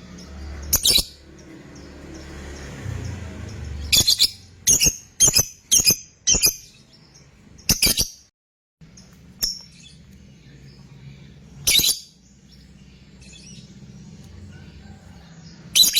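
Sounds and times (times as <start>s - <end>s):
bird giving shrill chirps: 0.7s - 1.2s, 3.8s - 6.8s, 11.6s - 12.2s.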